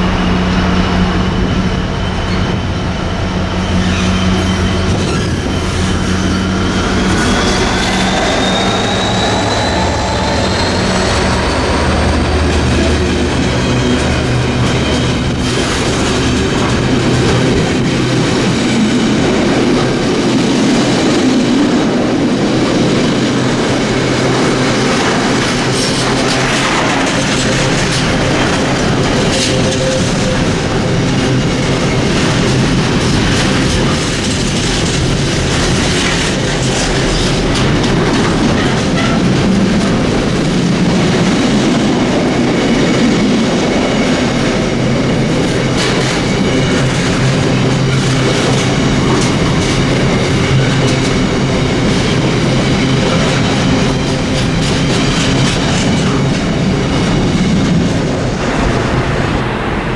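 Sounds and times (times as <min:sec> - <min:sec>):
rising whine: 0:00.0 - 0:19.0
freight wagons rumbling: 0:00.0 - 0:59.9
locomotive engine: 0:00.0 - 0:59.9
wheels clicking over rail joints: 0:24.9 - 0:31.2.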